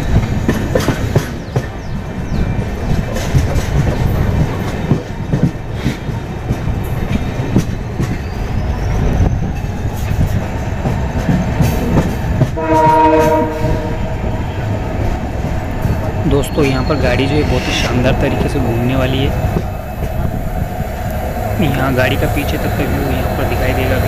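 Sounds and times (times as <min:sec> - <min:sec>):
train rumble: 0:00.0 - 0:24.0
train horn chord: 0:12.6 - 0:14.1.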